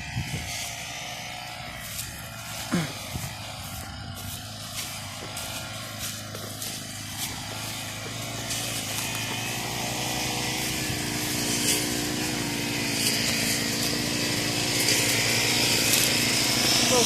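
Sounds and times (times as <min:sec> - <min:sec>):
brush cutter engine running: 0:00.0 - 0:17.0.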